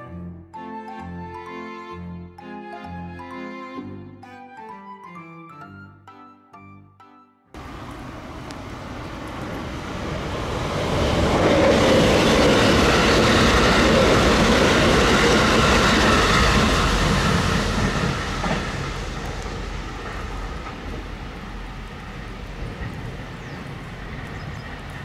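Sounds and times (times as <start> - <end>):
electric train passing: 7.6 - 25.0.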